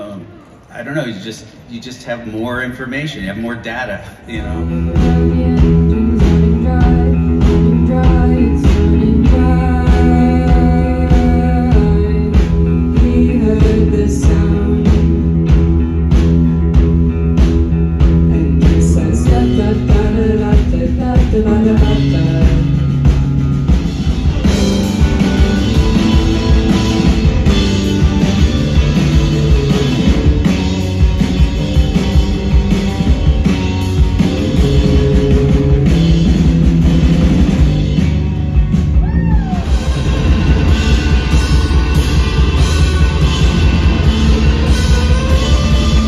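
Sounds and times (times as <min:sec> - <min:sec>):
drum kit: 0:03.8 - 0:46.0
person singing: 0:04.3 - 0:15.4, 0:18.2 - 0:23.0
electric guitar: 0:04.3 - 0:46.0.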